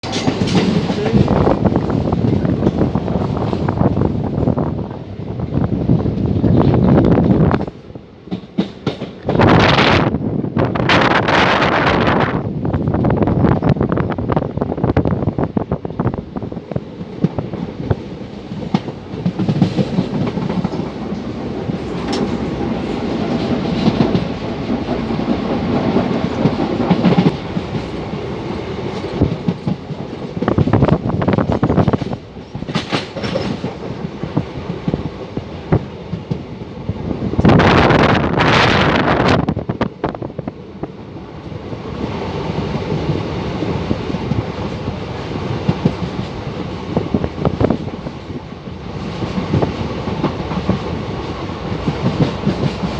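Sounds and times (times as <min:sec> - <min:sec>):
wheels clacking over rail joints: 0:00.0 - 0:04.6, 0:16.8 - 0:37.7, 0:42.5 - 0:52.9
train rumbling over rails: 0:00.0 - 0:52.9.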